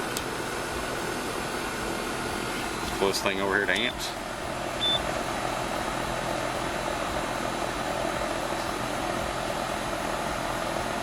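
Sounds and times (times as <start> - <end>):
fan blowing air: 0.0 - 11.0
low steady hum: 0.0 - 11.0.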